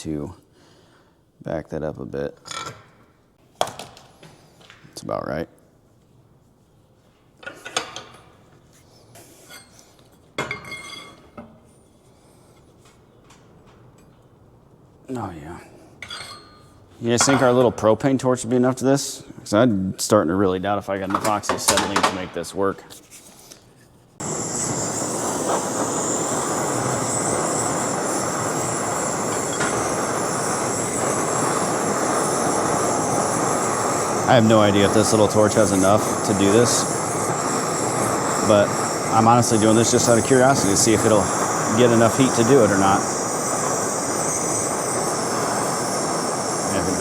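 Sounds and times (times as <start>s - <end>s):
propane torch flame rushing: 24.2s - 47.0s.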